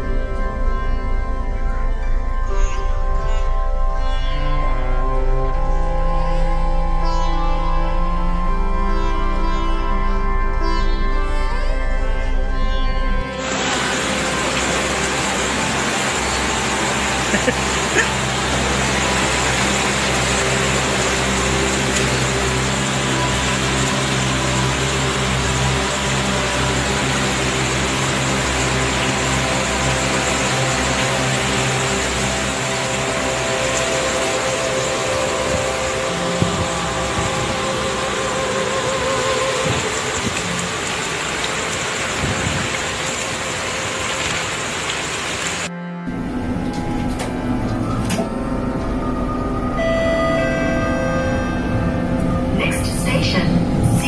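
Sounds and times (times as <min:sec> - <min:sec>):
heavy rain pouring: 0:13.2 - 0:54.0
bus engine idling: 0:13.3 - 0:43.9.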